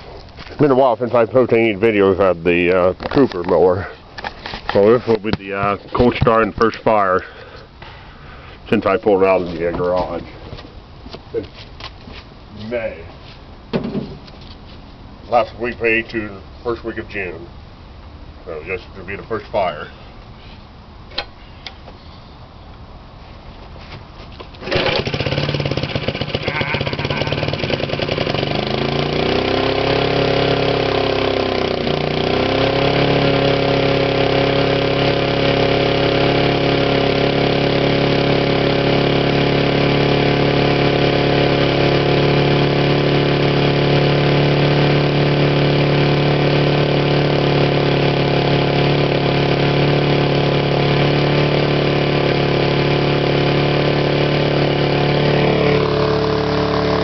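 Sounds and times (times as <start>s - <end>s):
lawnmower engine running: 24.4s - 57.0s.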